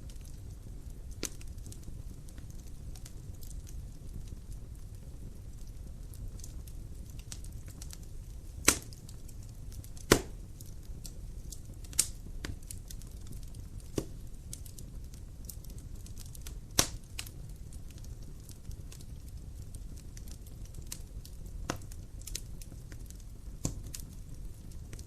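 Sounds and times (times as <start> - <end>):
sharp pops from fire: 0.0 - 25.0
wood fire crackling: 0.0 - 25.0.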